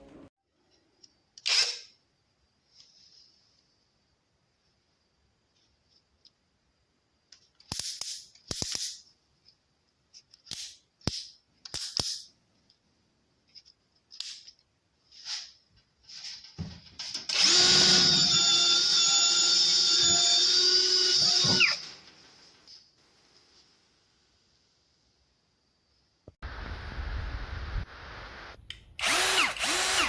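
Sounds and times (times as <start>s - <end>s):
cordless drill whining: 17.3s - 21.8s, 29.0s - 30.0s.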